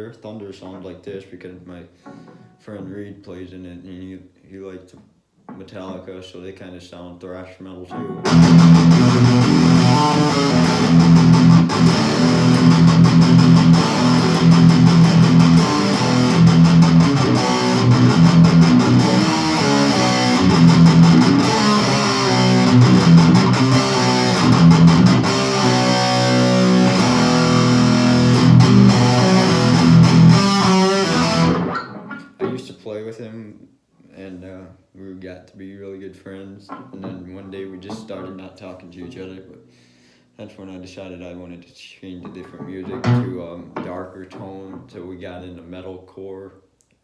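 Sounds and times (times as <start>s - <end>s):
electric guitar metal riff: 8.0s - 32.4s.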